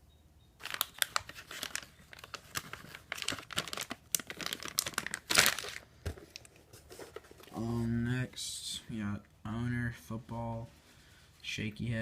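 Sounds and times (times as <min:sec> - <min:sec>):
plastic packaging crinkling: 0:00.6 - 0:07.7.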